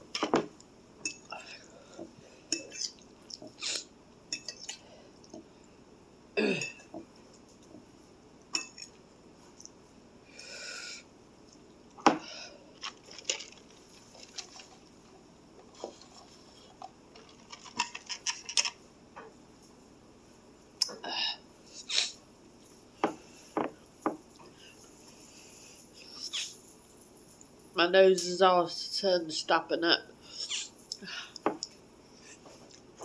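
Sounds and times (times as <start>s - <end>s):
utensils clinking against bowl: 1.0s - 1.3s, 4.3s - 4.8s, 8.6s - 9.0s.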